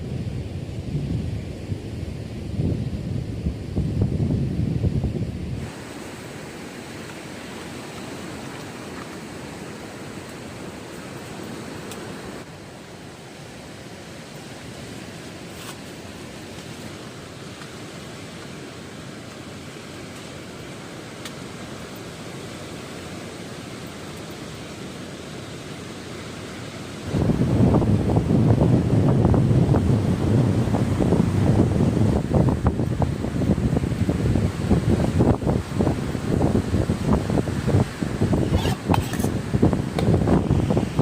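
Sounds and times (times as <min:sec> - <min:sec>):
strong wind: 0:00.0 - 0:41.0
surf breaking on beach: 0:05.5 - 0:23.8, 0:24.4 - 0:41.0.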